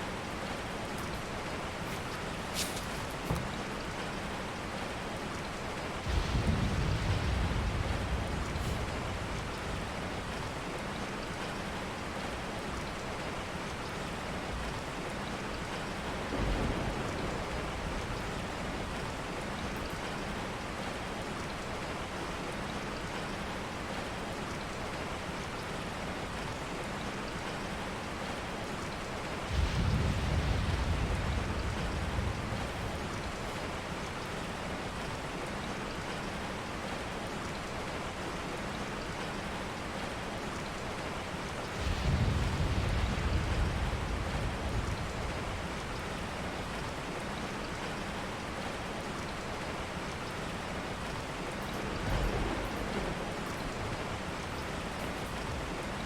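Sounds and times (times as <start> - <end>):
steady rain: 0.0 - 56.0
thunder rolling: 6.0 - 10.5, 29.5 - 33.5, 41.7 - 46.6, 51.5 - 56.0.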